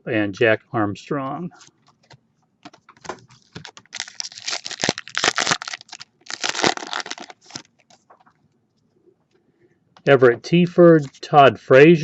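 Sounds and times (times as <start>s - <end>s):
foil wrapper tearing and crinkling: 3.4s - 7.8s.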